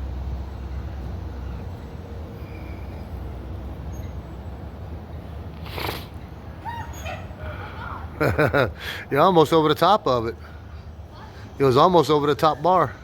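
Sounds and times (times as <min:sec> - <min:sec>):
brief hissing rush: 0:05.6 - 0:06.2.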